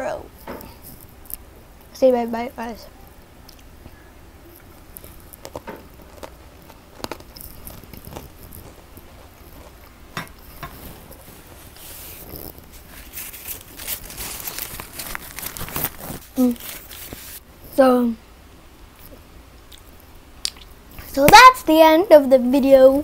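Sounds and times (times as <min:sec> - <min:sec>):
crunchy biscuit chewing: 0:04.6 - 0:17.3
paper tissue crinkling: 0:10.8 - 0:17.4.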